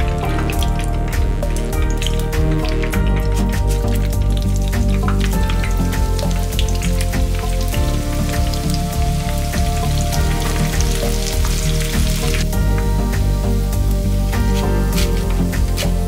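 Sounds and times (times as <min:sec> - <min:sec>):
background music: 0:00.0 - 0:16.0
chicken deep-frying sizzle: 0:00.0 - 0:16.0.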